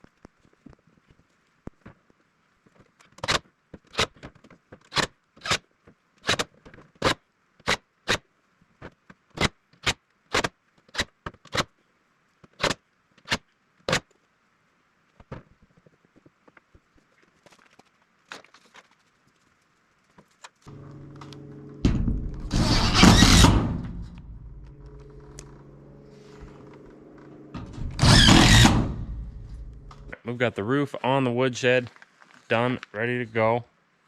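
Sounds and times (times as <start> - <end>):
sharp knocks: 20.7 - 25.7.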